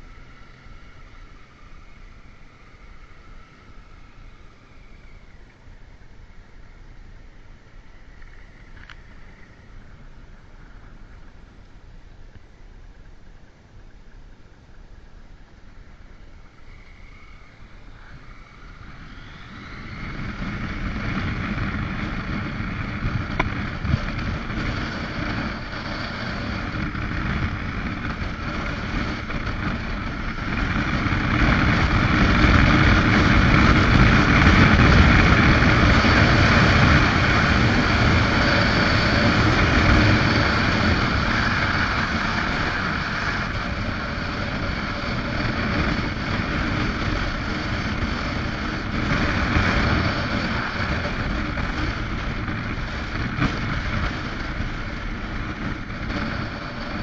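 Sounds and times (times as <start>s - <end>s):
rushing wind: 0.0s - 57.0s
motorcycle engine running: 13.0s - 57.0s.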